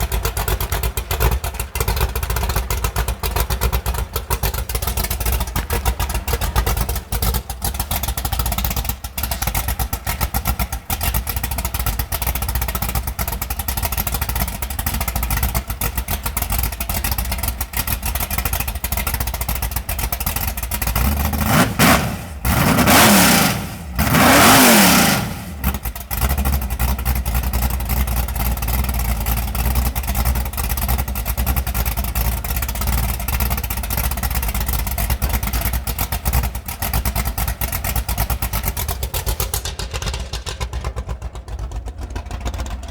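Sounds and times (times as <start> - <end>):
engine revving: 0.0 - 12.2, 20.8 - 27.2, 29.3 - 41.5
car engine idling roughly: 0.0 - 42.9.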